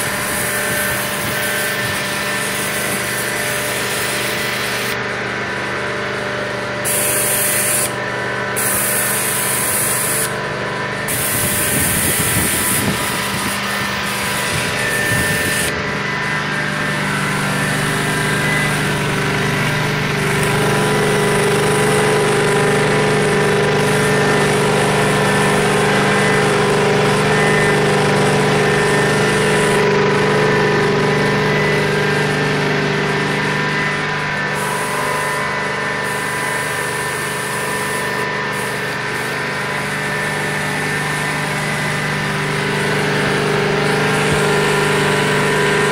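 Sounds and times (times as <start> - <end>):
carpet cleaner engine drone: 0.0 - 45.9
loud hiss: 6.9 - 8.0, 8.6 - 10.4, 11.0 - 15.7, 33.5 - 42.5.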